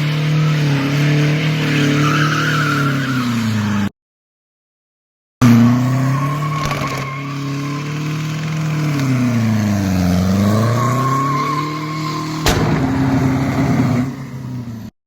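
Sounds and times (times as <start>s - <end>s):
sharp knock: 12.5s - 14.2s.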